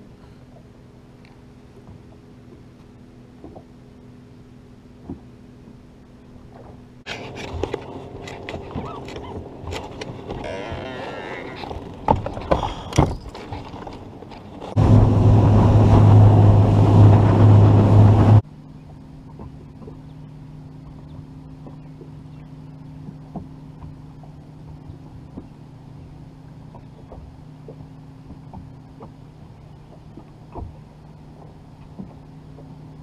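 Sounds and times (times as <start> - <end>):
boat motor running: 0.0 - 33.0
steady low hum: 14.0 - 33.0.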